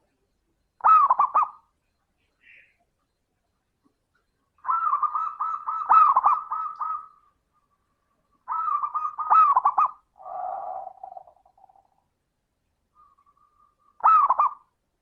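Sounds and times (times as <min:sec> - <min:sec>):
dove cooing: 0:00.8 - 0:01.7, 0:04.4 - 0:12.0, 0:13.0 - 0:14.7.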